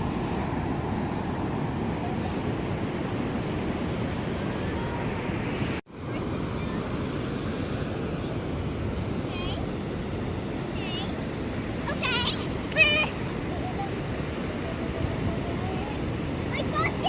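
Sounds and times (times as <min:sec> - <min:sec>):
ocean surf washing in: 0:00.0 - 0:17.0
wind rumbling on microphone: 0:00.0 - 0:17.0.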